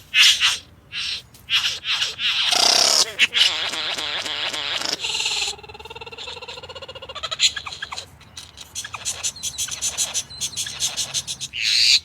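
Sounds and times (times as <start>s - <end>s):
bird rattling trill: 0.2s - 5.6s, 8.7s - 12.0s.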